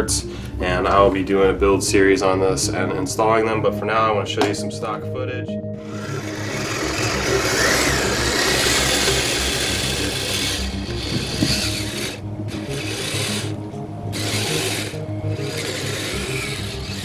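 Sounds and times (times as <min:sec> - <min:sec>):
toy electric motor whirring: 0:05.8 - 0:17.0.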